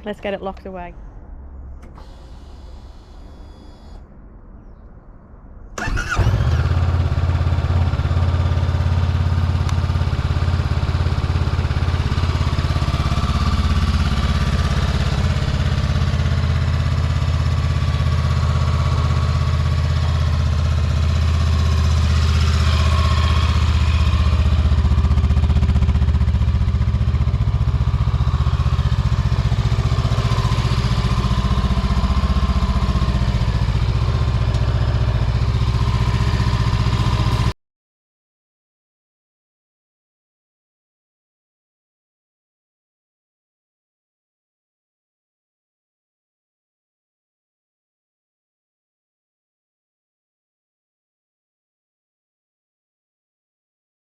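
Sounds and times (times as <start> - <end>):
motorcycle engine starting and idling: 1.8 - 4.0, 5.8 - 37.6.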